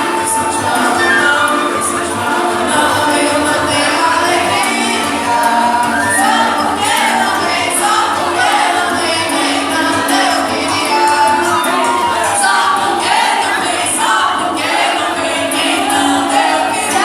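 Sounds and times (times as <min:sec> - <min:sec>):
musical accompaniment: 0:00.0 - 0:12.8
group singing folk song: 0:00.0 - 0:17.0.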